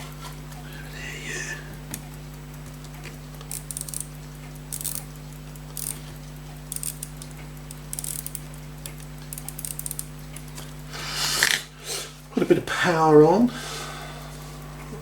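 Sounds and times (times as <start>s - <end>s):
low electrical hum: 0.0s - 15.0s
small metal tool clicks: 3.4s - 5.1s, 6.7s - 10.5s.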